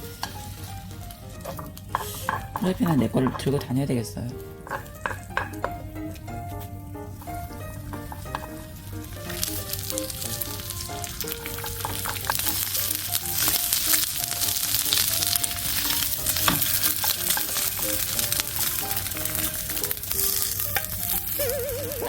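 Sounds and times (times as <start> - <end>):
food sizzling in a frying pan: 0.0 - 22.0
soft background music: 0.0 - 22.0
utensil clicking against pan: 1.4 - 3.9, 4.6 - 6.3, 7.9 - 8.6, 9.2 - 21.4.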